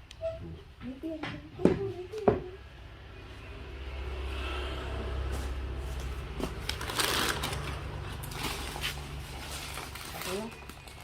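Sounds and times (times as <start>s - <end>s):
rustling crinkling handling noise: 5.9s - 11.0s.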